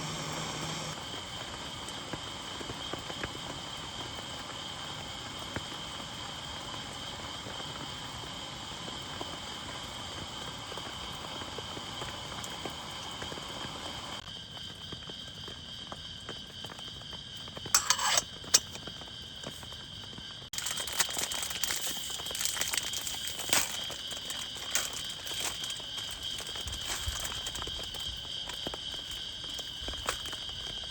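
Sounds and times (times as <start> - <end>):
steady rain hiss: 0.0 - 14.4
high insect-like tone: 17.6 - 19.7, 20.5 - 30.9.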